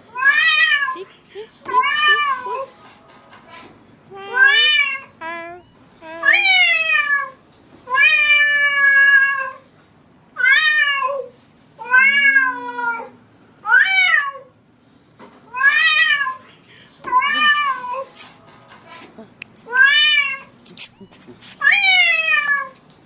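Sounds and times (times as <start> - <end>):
cat meowing: 4.1 - 9.6, 10.4 - 13.1, 17.1 - 18.0.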